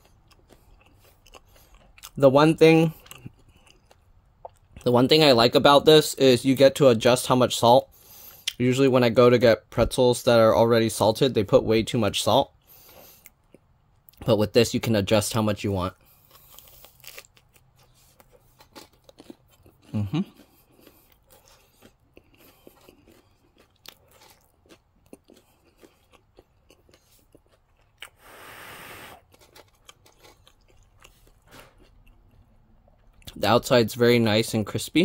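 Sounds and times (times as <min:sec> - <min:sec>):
chewing crunchy pretzel: 0:00.0 - 0:05.6, 0:12.4 - 0:14.3, 0:15.9 - 0:28.6, 0:29.2 - 0:33.4.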